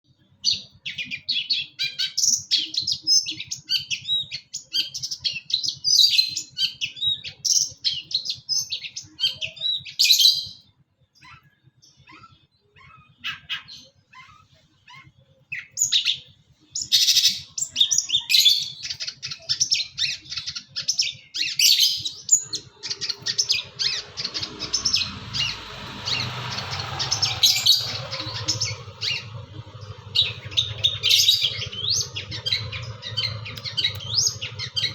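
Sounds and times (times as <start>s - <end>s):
bird singing varied song: 0.0s - 34.9s
steady rushing noise: 22.4s - 34.9s.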